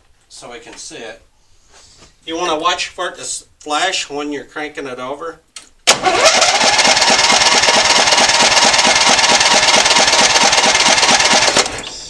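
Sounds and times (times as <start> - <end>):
electric starter cranking engine: 5.9 - 12.0.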